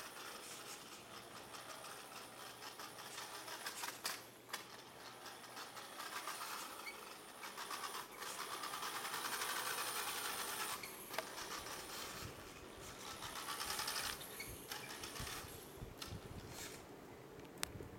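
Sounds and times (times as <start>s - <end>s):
toy car motor whirring: 0.0s - 16.8s.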